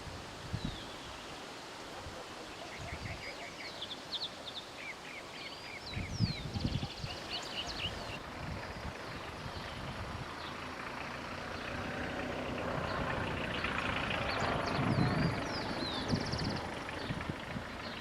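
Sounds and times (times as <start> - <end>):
birds chirping: 0.6 - 18.0.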